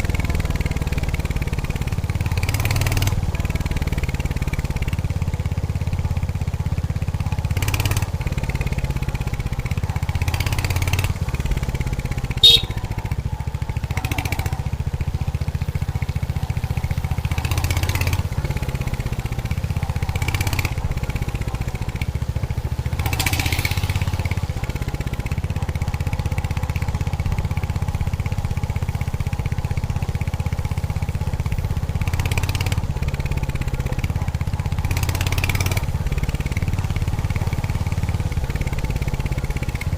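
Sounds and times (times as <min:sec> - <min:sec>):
motorcycle engine and exhaust: 0:00.0 - 0:39.9
road and wind noise: 0:00.0 - 0:39.9
sharp high-pitched sound: 0:12.4 - 0:12.8.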